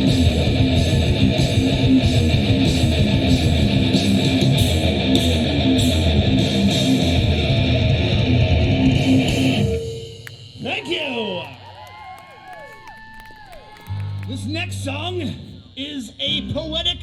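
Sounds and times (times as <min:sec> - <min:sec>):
strummed guitars: 0:00.0 - 0:10.0
drums keeping a steady beat: 0:00.0 - 0:11.4.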